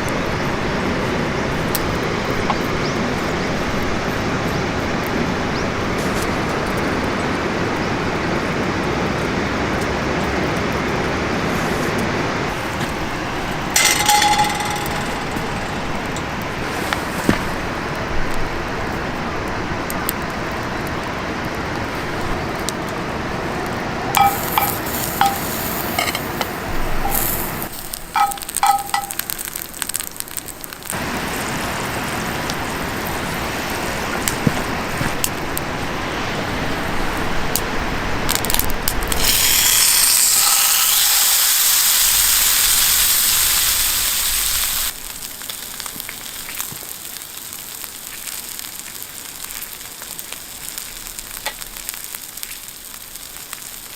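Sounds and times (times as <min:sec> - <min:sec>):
food sizzling in a pan: 0:13.7 - 0:17.1, 0:24.1 - 0:34.2, 0:39.1 - 0:53.9
metal clinks: 0:13.8 - 0:16.1, 0:24.1 - 0:26.4, 0:27.0 - 0:29.5.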